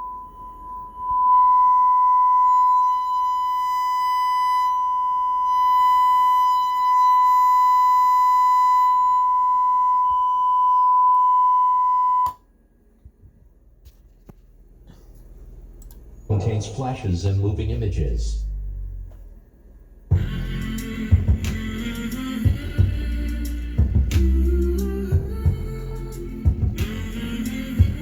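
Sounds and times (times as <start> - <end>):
high-pitched test tone: 0.0 - 12.3
click: 15.8 - 16.0.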